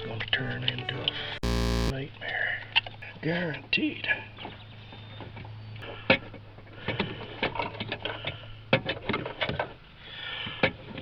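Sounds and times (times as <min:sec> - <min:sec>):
steady low hum: 0:01.4 - 0:01.9.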